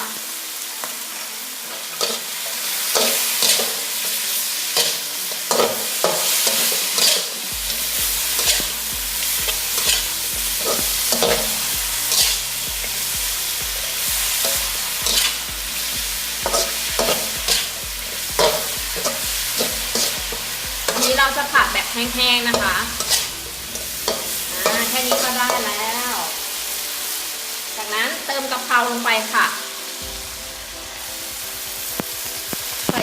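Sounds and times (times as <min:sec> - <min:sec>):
pork sizzling in a pan: 0:00.0 - 0:33.0
spatula scraping a pan: 0:08.2 - 0:12.4, 0:14.3 - 0:15.4, 0:16.4 - 0:17.8, 0:18.4 - 0:21.8, 0:22.4 - 0:26.3.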